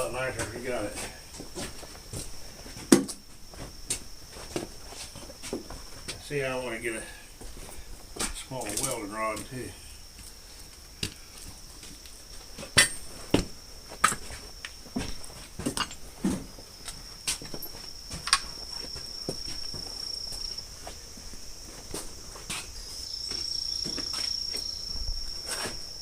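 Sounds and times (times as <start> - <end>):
high insect trill: 0.0 - 26.0
tools clinking and knocking: 15.6 - 16.0.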